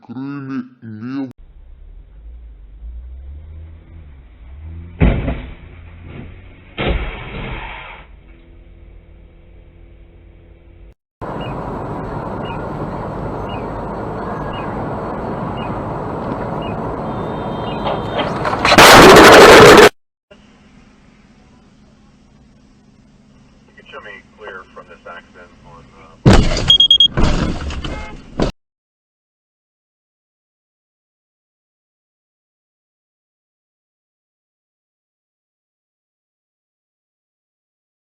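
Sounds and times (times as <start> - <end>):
car road noise: 1.4 - 28.5
loud car crash: 3.2 - 8.1, 17.8 - 20.0, 26.2 - 28.5
sharp impact bangs: 4.6 - 7.9, 18.5 - 19.9.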